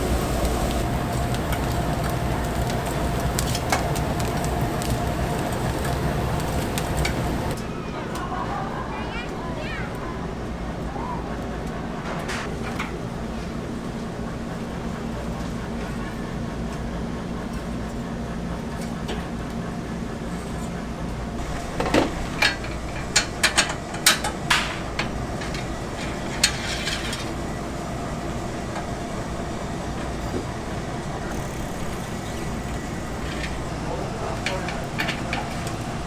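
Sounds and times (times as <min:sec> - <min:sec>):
kitchen utensils clinking: 0:00.0 - 0:07.6
steady background hum: 0:00.0 - 0:36.0.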